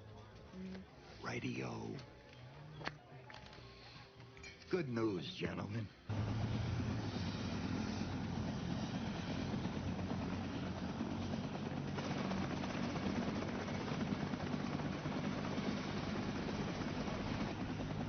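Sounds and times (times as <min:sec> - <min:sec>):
helicopter rotor drone: 0:06.1 - 0:18.0.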